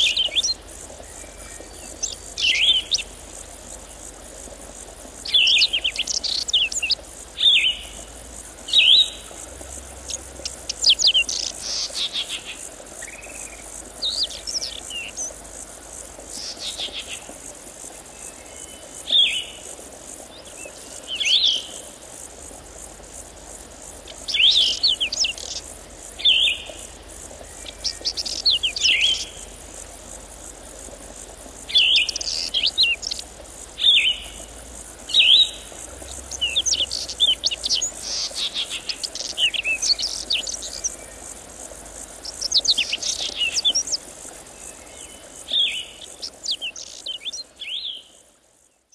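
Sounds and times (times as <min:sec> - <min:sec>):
birds chirping and trilling: 0:05.2 - 0:08.0, 0:10.0 - 0:15.3, 0:24.1 - 0:26.8, 0:27.6 - 0:29.4, 0:31.7 - 0:33.2, 0:35.1 - 0:41.0, 0:42.2 - 0:44.0, 0:45.1 - 0:48.0.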